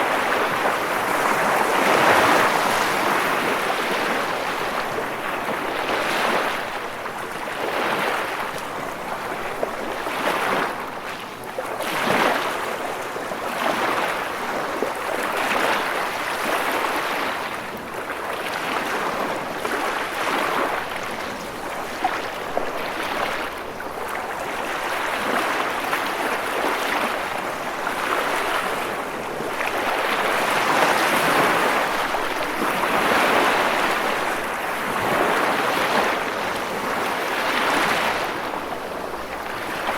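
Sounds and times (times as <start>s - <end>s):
ocean waves breaking: 0.0s - 10.9s, 18.2s - 39.9s.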